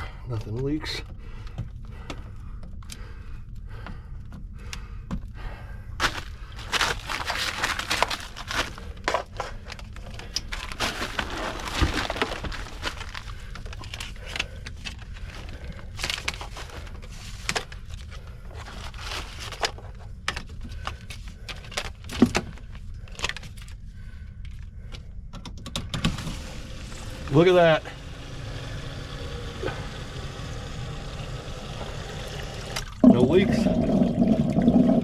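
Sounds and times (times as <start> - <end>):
handling clicks and rattles: 6.0 - 18.1.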